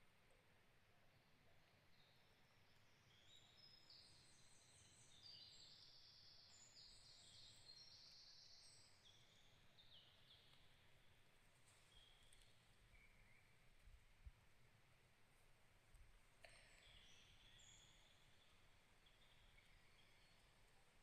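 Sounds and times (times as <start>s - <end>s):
low steady hiss: 0.0s - 21.0s
small birds singing buzzy trills: 1.2s - 10.9s, 16.6s - 21.0s.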